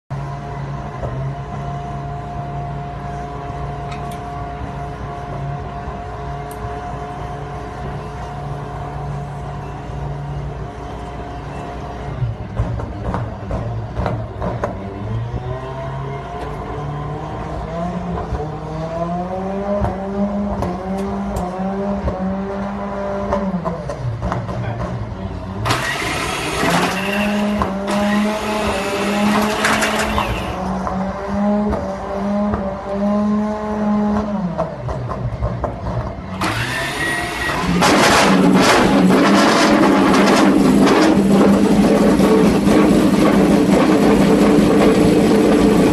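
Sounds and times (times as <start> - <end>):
loud rushing noise: 36.2 - 45.9.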